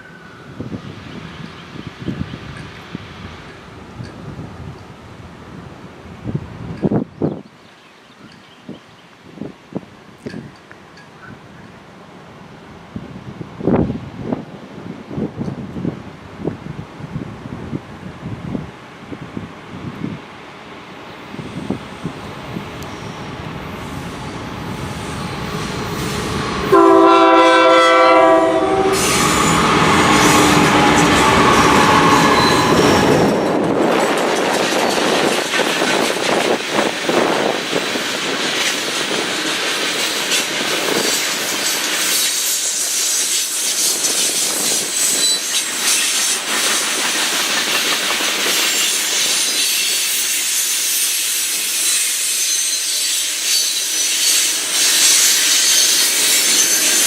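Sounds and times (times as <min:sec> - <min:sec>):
diesel locomotive rumble: 0:16.2 - 0:50.2
train horn blast: 0:25.9 - 0:33.3
train wheels clacking on rails: 0:28.9 - 0:57.0.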